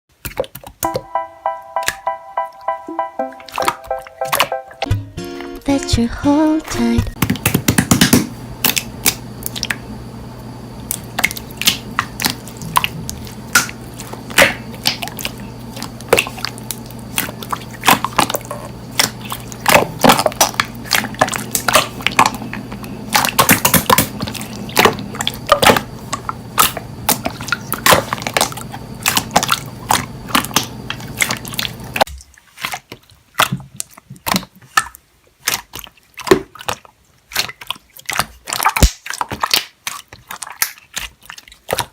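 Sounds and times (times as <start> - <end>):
slime squelching and popping: 32.5 - 41.9.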